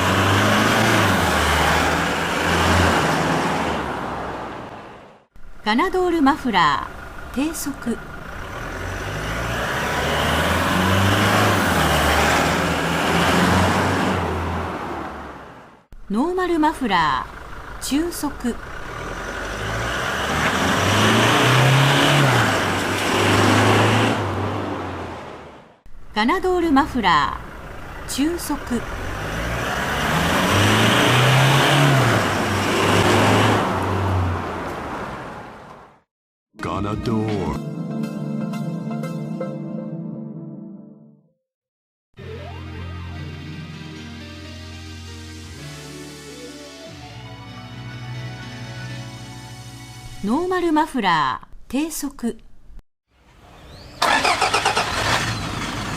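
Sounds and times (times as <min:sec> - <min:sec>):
diesel truck driving past: 0:00.0 - 0:05.3, 0:06.4 - 0:15.8, 0:16.8 - 0:25.8, 0:26.6 - 0:36.0, 0:53.2 - 0:55.9.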